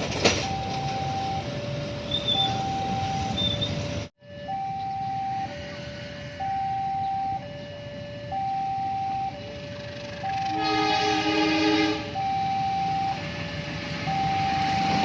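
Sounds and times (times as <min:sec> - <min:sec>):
level crossing two-tone alarm: 0:00.3 - 0:15.0
train horn: 0:10.3 - 0:12.2.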